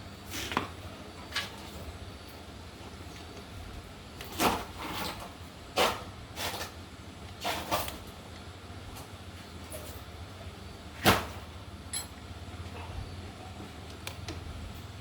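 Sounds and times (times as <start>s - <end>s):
sharp knocks and clinks: 11.9s - 12.2s.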